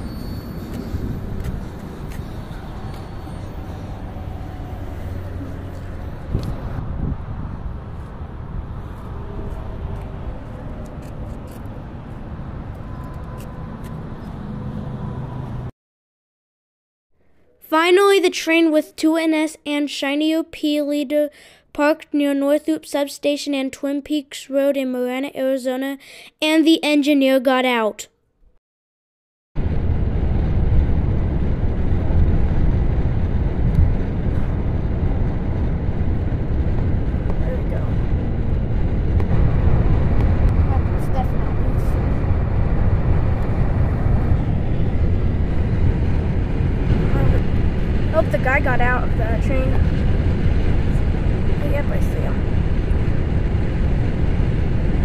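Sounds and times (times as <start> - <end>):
low vehicle rumble: 0.0 - 15.7, 29.6 - 55.0.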